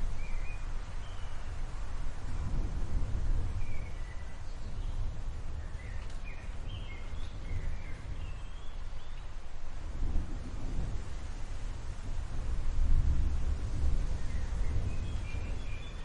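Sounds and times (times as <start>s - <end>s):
low storm rumbling: 0.0s - 16.0s
small birds chirping: 3.6s - 9.4s, 14.2s - 16.0s.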